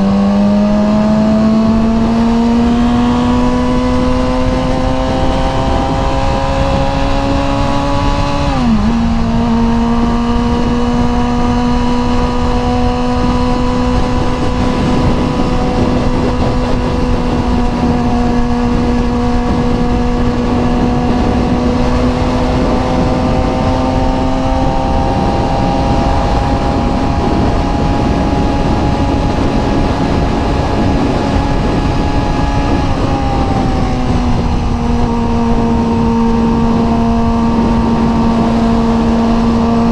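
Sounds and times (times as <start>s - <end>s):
motorcycle engine cruising: 0.0s - 39.9s
wind noise: 0.0s - 39.9s.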